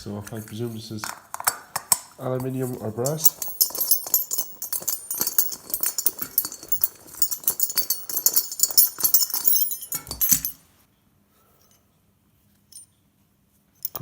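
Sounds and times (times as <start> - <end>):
small metal parts clinking: 1.0 - 10.6.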